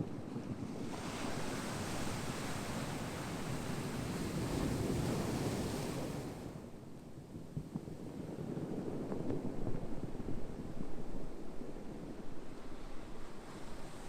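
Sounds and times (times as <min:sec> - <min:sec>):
ocean surf rumble: 0:00.6 - 0:06.8, 0:10.0 - 0:14.0.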